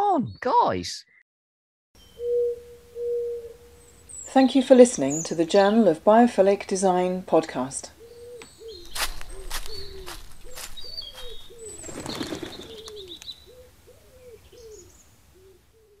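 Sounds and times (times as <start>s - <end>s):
small birds chirping: 2.0s - 7.2s, 7.8s - 16.0s
pigeon cooing: 2.2s - 3.9s, 8.0s - 16.0s.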